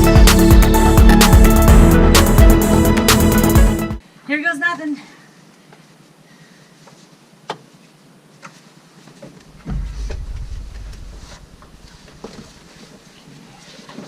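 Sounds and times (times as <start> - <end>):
dull low thump: 9.5 - 12.5.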